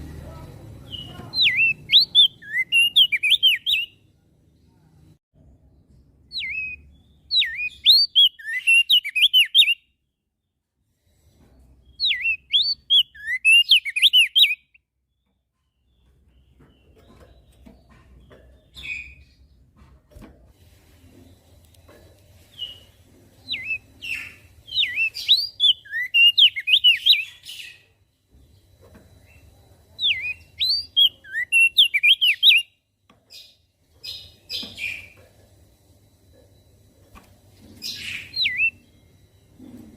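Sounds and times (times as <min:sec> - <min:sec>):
faint low hum: 0:00.0 - 0:02.5, 0:32.7 - 0:39.9
bird twittering song: 0:00.0 - 0:04.1, 0:05.8 - 0:10.5, 0:11.8 - 0:19.7, 0:22.4 - 0:35.3, 0:37.6 - 0:39.6
bird chirps: 0:00.0 - 0:04.9, 0:05.8 - 0:10.5, 0:11.6 - 0:19.6, 0:21.8 - 0:35.4, 0:37.6 - 0:39.9.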